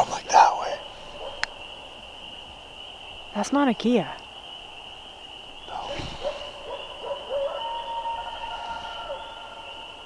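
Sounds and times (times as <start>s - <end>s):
coyotes howling and yipping: 0.0s - 10.0s.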